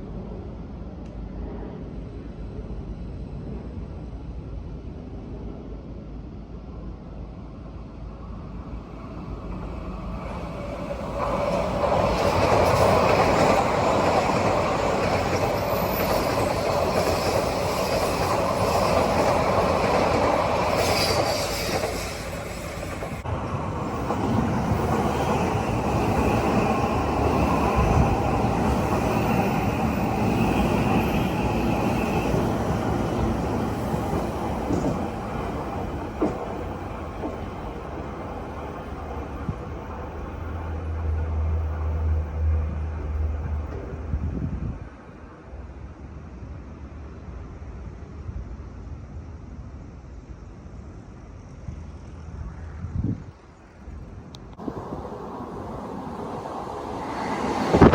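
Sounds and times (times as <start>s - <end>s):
train wheels rumbling on rail: 0.0s - 57.9s.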